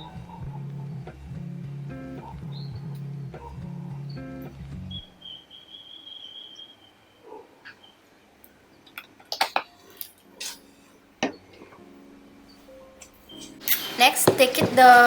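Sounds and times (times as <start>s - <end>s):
utensils clinking against pot: 10.4s - 10.6s.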